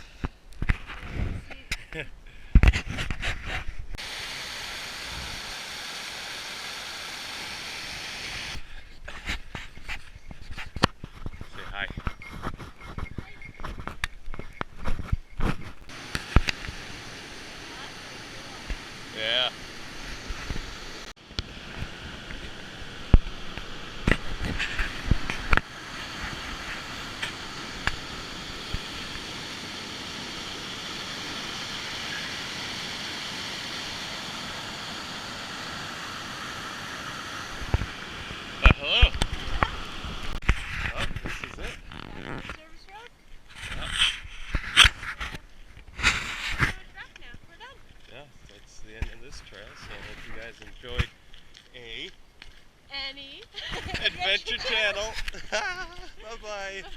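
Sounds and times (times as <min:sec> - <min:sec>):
steady rushing hiss: 0:03.3 - 0:09.9, 0:15.8 - 0:40.6, 0:52.8 - 0:56.9.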